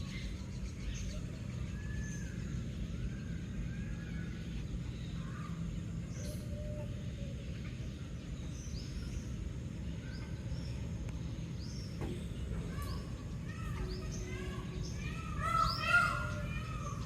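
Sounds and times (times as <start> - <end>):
low background rumble: 0.0 - 17.0
small birds chirping: 0.0 - 17.0.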